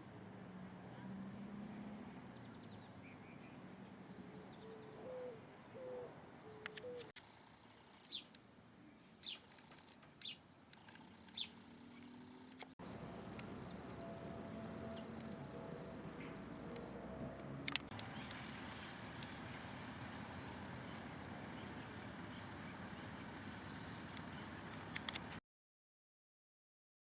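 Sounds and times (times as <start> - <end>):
low hooting bird notes: 12.8 - 18.3.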